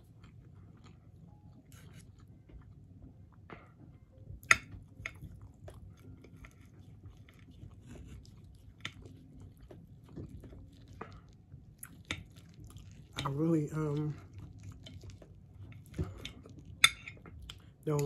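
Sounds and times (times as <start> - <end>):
chewing food: 0.0 - 18.0
knife and fork clicking on plate: 16.8 - 17.2.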